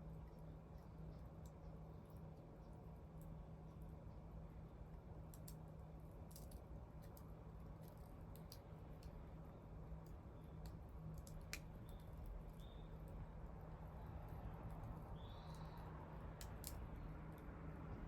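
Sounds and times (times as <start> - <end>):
wood fire crackling: 10.0 - 17.4.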